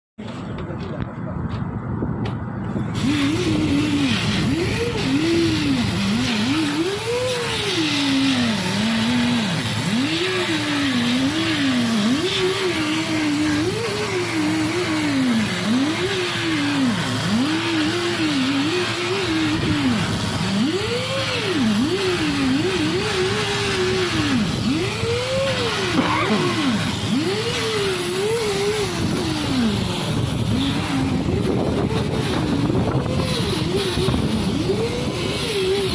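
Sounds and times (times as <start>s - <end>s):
engine room machinery noise: 0.2s - 35.9s
rising and falling tone: 20.6s - 35.9s.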